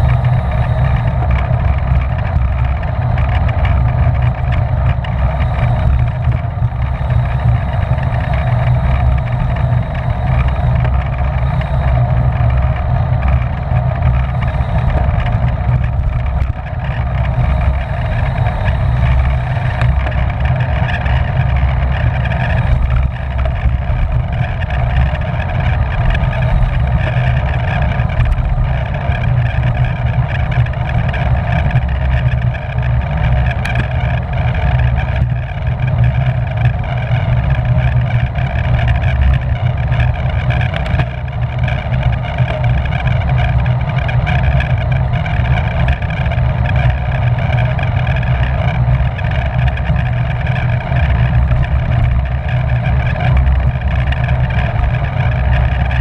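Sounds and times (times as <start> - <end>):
wind rushing on microphone: 0.0 - 56.0.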